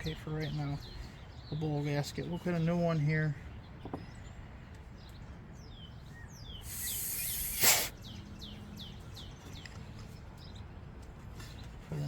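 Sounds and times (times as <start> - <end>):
songbird chirping: 0.0 - 12.0
hiss ending in loud burst: 6.6 - 7.9.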